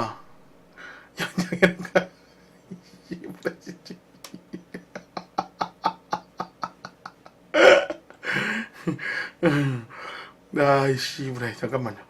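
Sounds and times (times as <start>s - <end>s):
man breathing rapidly: 8.2s - 10.4s.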